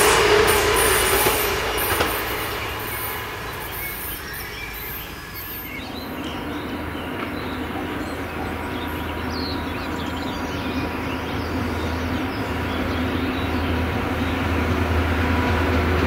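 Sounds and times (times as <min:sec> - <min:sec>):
high wheel squeal: 0:00.0 - 0:10.6
train wheel and rail noise: 0:00.0 - 0:16.0.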